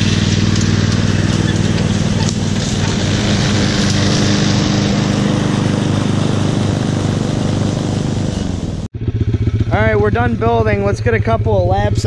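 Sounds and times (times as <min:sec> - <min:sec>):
small single-cylinder engine running: 0:00.0 - 0:11.0.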